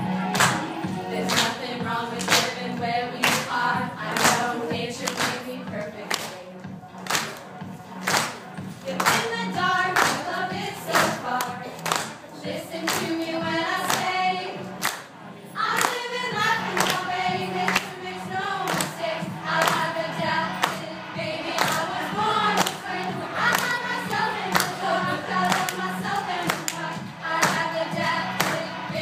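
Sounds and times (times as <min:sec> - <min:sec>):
group of people singing: 0:00.0 - 0:06.7, 0:08.8 - 0:29.0
hand claps: 0:00.3 - 0:00.7, 0:01.3 - 0:01.6, 0:02.2 - 0:02.5, 0:03.2 - 0:03.5, 0:04.2 - 0:05.4, 0:07.0 - 0:07.4, 0:08.0 - 0:08.4, 0:09.0 - 0:09.3, 0:11.0 - 0:12.2, 0:14.8 - 0:15.1, 0:16.7 - 0:17.0, 0:17.7 - 0:17.9, 0:19.6 - 0:19.9, 0:20.5 - 0:20.8, 0:21.6 - 0:21.9, 0:22.6 - 0:22.8, 0:24.5 - 0:24.8, 0:25.5 - 0:25.8, 0:26.5 - 0:28.7.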